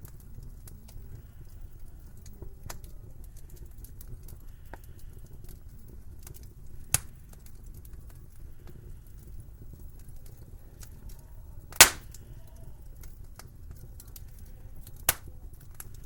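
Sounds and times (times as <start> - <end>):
wood fire crackling: 0.0 - 16.0
loud sharp fire pop: 11.8 - 12.1.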